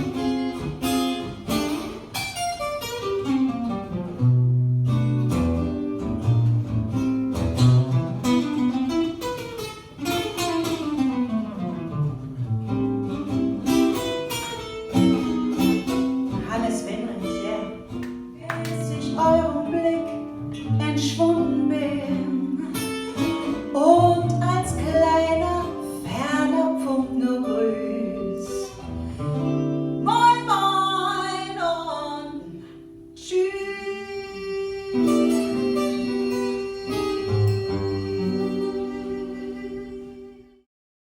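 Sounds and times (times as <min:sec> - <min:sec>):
acoustic guitar playing: 0:00.0 - 0:40.7
person singing: 0:16.4 - 0:28.8, 0:33.2 - 0:40.7.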